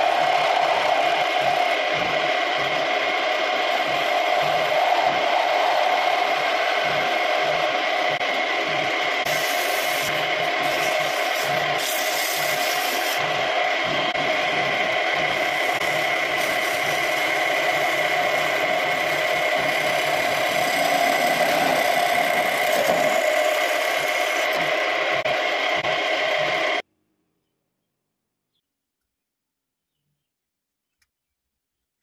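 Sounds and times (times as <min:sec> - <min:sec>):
lathe motor whine: 0:00.0 - 0:26.8
tool scraping spinning wood: 0:14.0 - 0:25.3.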